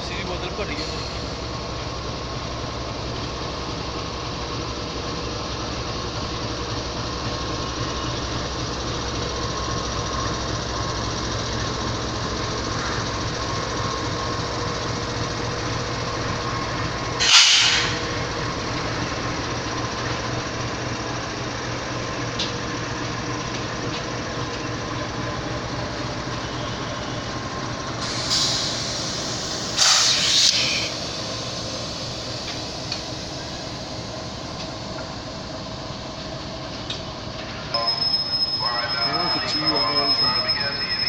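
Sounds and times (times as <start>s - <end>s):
goods train rumbling: 0.0s - 41.0s
bursts of hiss: 28.0s - 32.6s.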